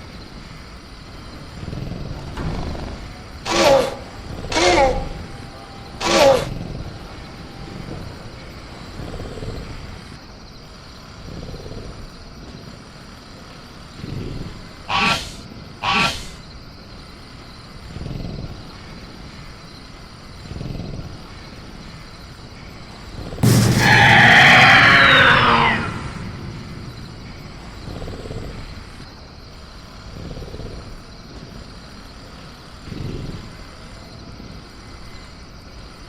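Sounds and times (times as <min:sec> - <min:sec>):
crickets humming: 0:00.0 - 0:36.0
creature shrieks falling in pitch: 0:03.5 - 0:05.2, 0:06.0 - 0:06.5, 0:14.9 - 0:16.4, 0:23.4 - 0:27.3.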